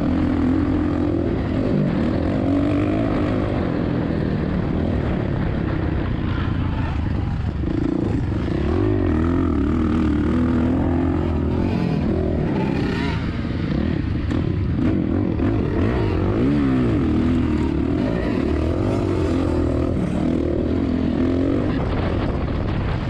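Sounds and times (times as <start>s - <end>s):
motorcycle engine revving: 0.0s - 23.0s
wind noise on microphone: 19.1s - 23.0s.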